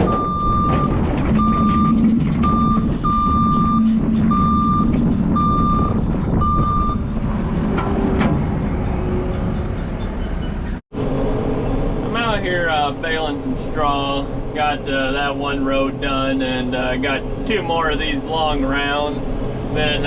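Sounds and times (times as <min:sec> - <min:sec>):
backup alarm beeping: 0:00.0 - 0:07.1
diesel engine running: 0:00.0 - 0:20.0.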